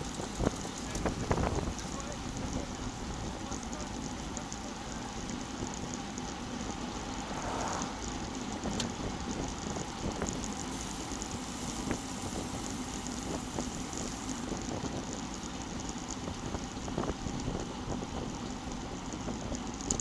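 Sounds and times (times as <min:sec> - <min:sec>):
wind rushing over microphone: 0:07.0 - 0:10.3.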